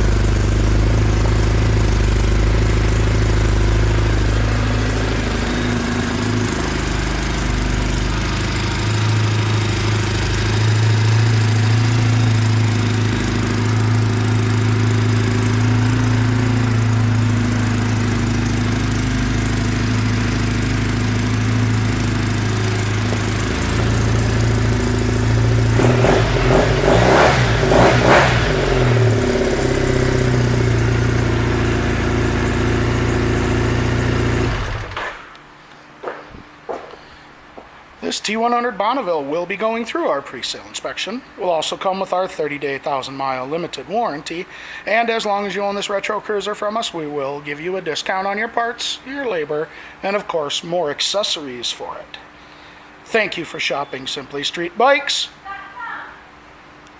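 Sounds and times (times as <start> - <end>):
motorcycle engine idling and revving: 0.0 - 35.4.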